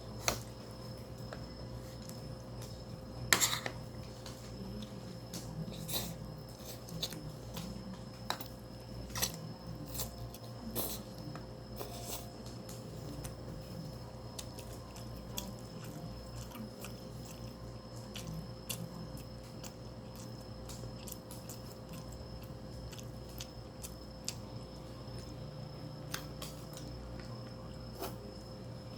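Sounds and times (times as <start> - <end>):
steady low hum: 0.0 - 28.9
person chewing wetly: 4.0 - 28.4.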